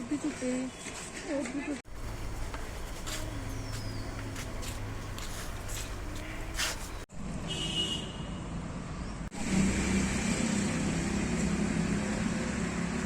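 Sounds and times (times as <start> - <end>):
outdoor background noise: 0.0 - 13.0
vehicle engine running: 1.9 - 7.1.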